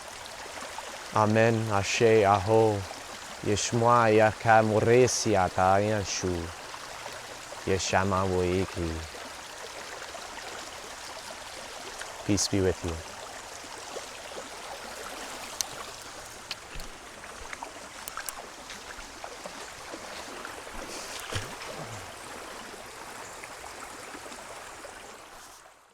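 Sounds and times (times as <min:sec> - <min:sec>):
stream flowing: 0:00.0 - 0:25.9
faint clicks: 0:15.5 - 0:18.4.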